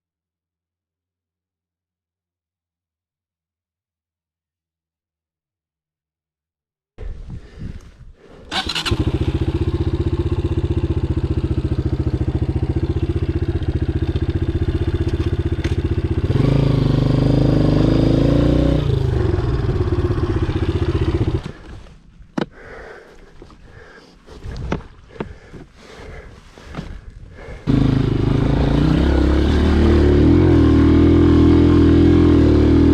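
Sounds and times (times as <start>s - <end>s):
dirt bike engine running: 8.5s - 21.8s, 24.9s - 32.9s.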